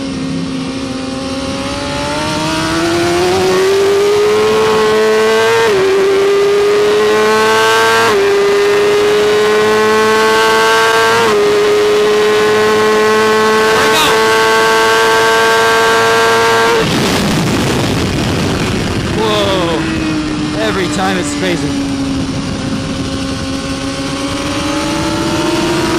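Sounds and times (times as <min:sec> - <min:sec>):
motorcycle engine at high revs: 0:00.0 - 0:25.9
wind rush: 0:16.6 - 0:25.9.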